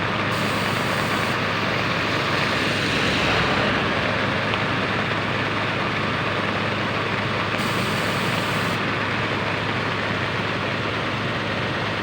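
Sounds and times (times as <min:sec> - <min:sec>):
heavy diesel engine running: 0:00.0 - 0:12.0
rain hissing: 0:00.2 - 0:06.4.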